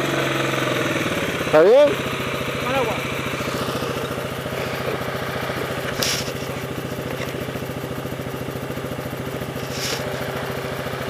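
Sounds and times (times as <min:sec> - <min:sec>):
dirt bike engine idling: 0:00.0 - 0:11.0
short hiss: 0:06.0 - 0:06.4, 0:09.6 - 0:10.2.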